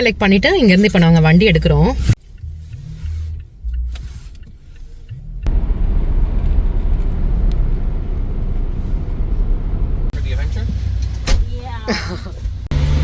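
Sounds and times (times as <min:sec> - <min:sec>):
car engine hum: 0:00.0 - 0:13.0
road noise: 0:00.0 - 0:13.0.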